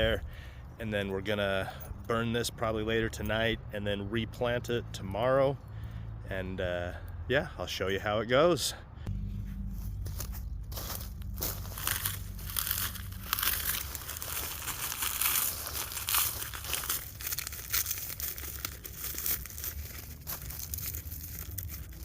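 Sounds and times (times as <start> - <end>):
dry corn leaves crackling: 9.9 - 22.0.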